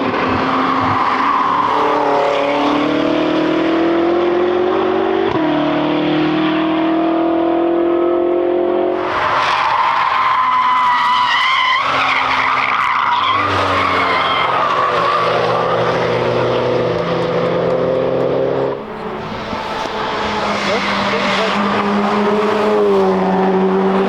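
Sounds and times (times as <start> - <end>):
car tyres squealing: 0.0 - 2.8, 8.9 - 23.0
car engine revving: 10.8 - 24.0.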